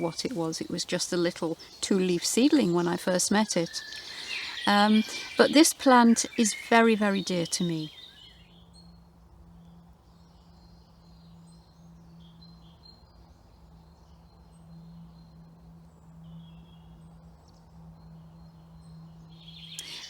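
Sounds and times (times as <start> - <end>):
faint bird chirps: 0.0 - 9.0, 18.0 - 20.0
outdoor background noise: 0.0 - 20.0.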